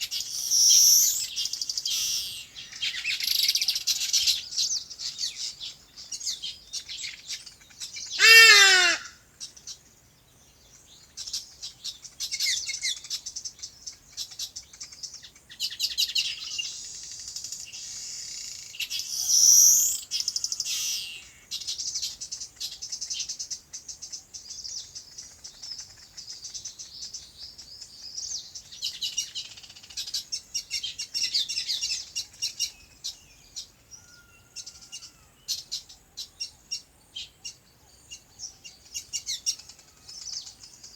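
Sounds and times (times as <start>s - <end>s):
small birds chirping: 0.0s - 40.9s
bird call falling in pitch: 8.2s - 9.2s.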